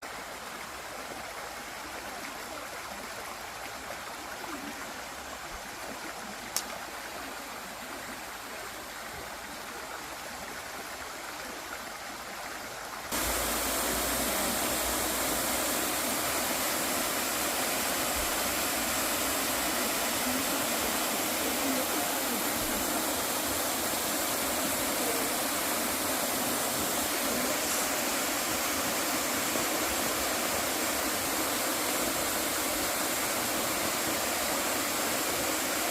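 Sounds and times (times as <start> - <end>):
running water rushing: 0.0 - 35.9
sharp click: 6.6 - 6.8.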